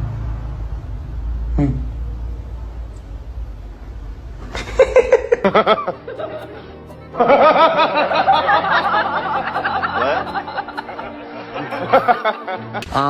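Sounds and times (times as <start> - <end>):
people laughing: 4.4 - 12.9
music: 4.5 - 13.0.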